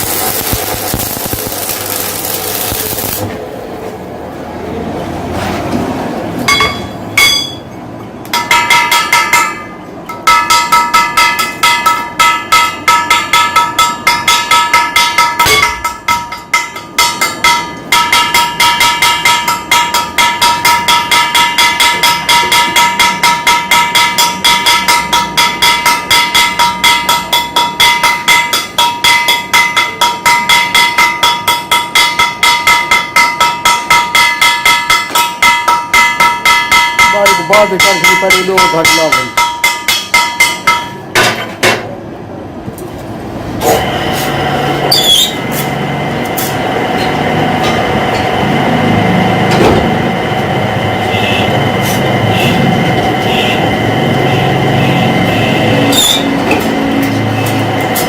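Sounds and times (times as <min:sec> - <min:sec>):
hammer striking ringing metal: 0:00.0 - 0:03.2, 0:06.5 - 0:41.9.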